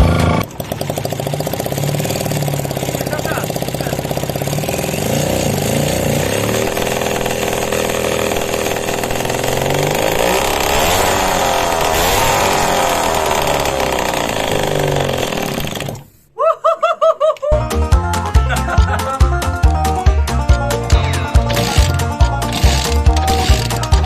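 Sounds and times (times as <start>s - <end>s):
motorcycle engine revving: 0.0s - 16.2s, 20.9s - 24.0s.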